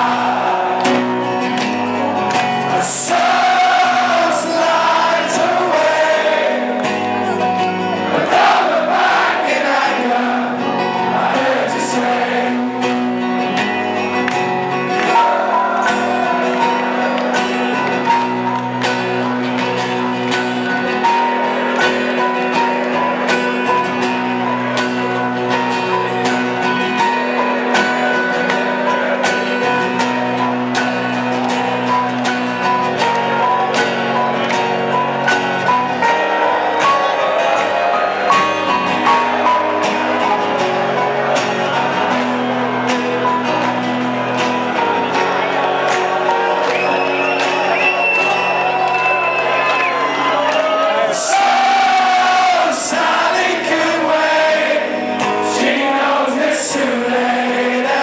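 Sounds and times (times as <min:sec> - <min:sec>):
live rock band playing: 0:00.0 - 0:58.0
person singing: 0:02.6 - 0:07.1, 0:08.0 - 0:13.5, 0:51.0 - 0:58.0.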